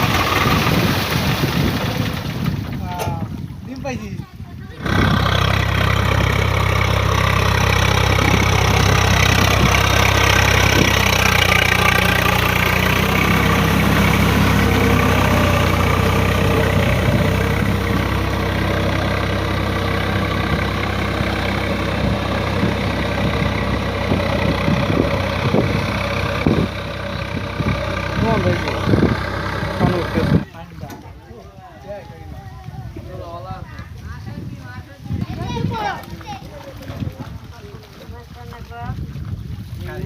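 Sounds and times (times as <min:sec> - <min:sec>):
tractor diesel engine running: 0:00.0 - 0:03.6, 0:04.3 - 0:31.2.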